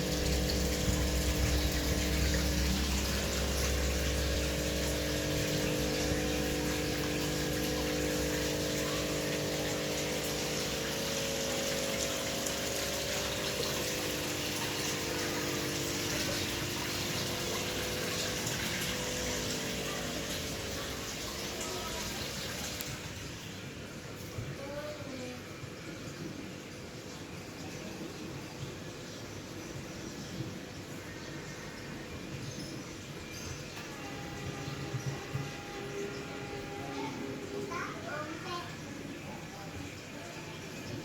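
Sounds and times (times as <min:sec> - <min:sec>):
deep low hum: 0:00.0 - 0:23.4
machine hum: 0:00.0 - 0:24.9, 0:29.6 - 0:41.0.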